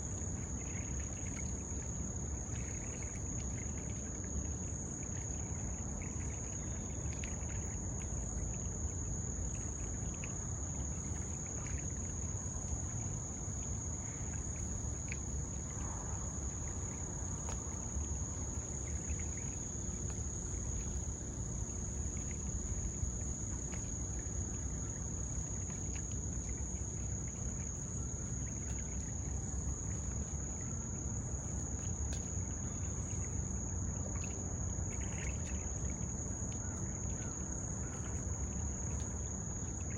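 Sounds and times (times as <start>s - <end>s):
insects chirping chorus: 0.0s - 39.9s
low rumble of wind or river: 0.0s - 39.9s.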